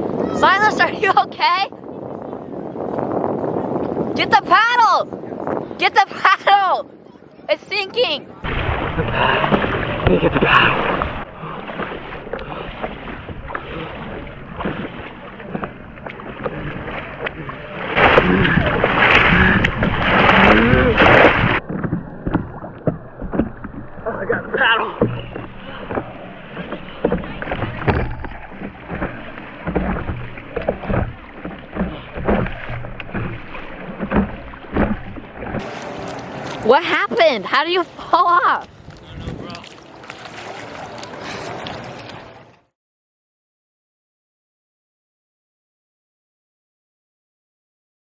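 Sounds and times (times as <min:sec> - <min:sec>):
wind on microphone: 0:00.0 - 0:42.5
paddle in water: 0:00.0 - 0:42.8
small knocks: 0:25.0 - 0:35.6.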